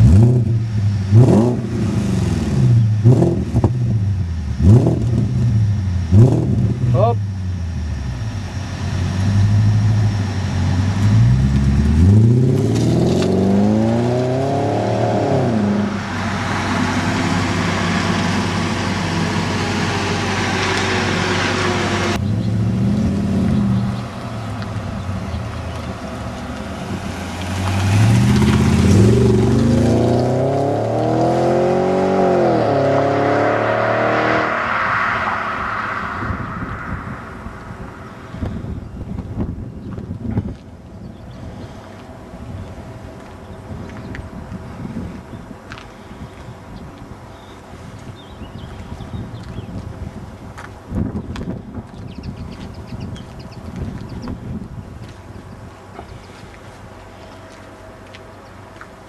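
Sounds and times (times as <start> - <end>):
car engine revving: 0.0 - 39.4.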